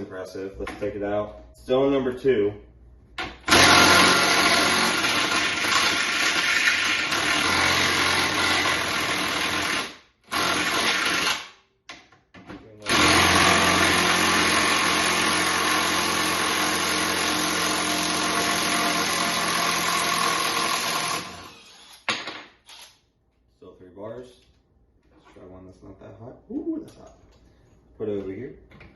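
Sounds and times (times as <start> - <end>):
cordless power tool driving screws: 3.4 - 11.5, 12.9 - 23.0.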